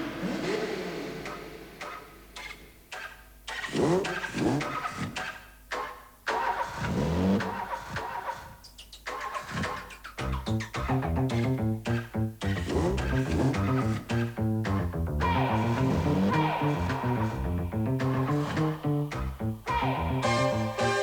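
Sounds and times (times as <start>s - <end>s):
rhythmic music: 4.7s - 21.0s.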